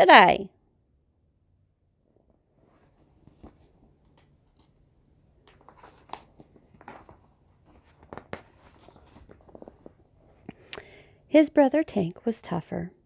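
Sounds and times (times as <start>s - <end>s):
paper pages turning: 5.4s - 10.7s.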